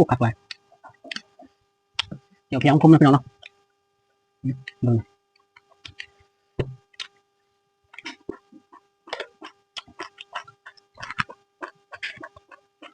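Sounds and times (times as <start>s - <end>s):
faint electrical hum: 0.0s - 12.9s
wet chewing and lip-smacking: 0.4s - 2.2s, 5.4s - 6.2s, 7.9s - 12.9s.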